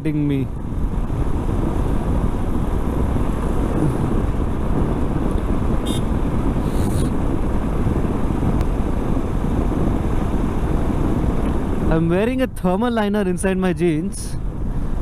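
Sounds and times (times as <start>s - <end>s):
wind rushing on microphone: 0.0s - 15.0s
motorcycle engine running: 0.5s - 11.9s.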